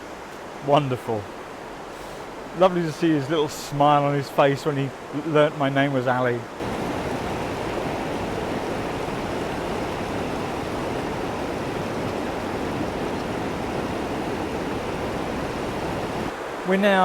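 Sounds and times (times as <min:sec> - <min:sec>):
river rushing over weir: 0:06.5 - 0:17.0.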